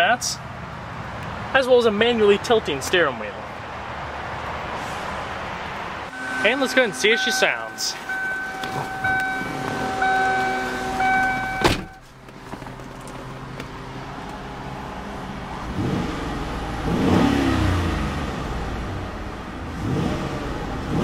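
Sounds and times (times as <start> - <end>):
car engine idling and revving: 3.5 - 21.0
car warning chime: 6.1 - 12.0.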